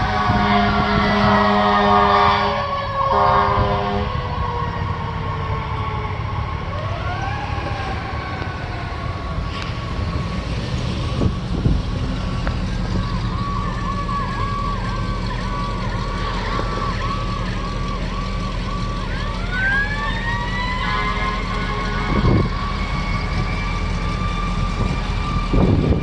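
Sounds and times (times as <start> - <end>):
siren yelping: 0.0 - 9.5, 12.8 - 26.0
truck engine rumble: 0.0 - 26.0
siren winding up: 12.9 - 26.0.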